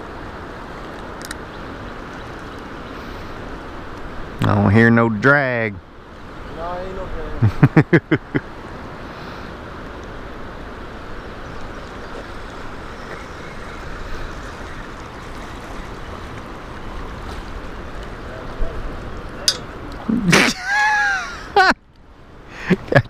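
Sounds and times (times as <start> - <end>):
river water rushing: 0.0 - 7.5, 8.2 - 22.6
bird calls: 11.3 - 16.2.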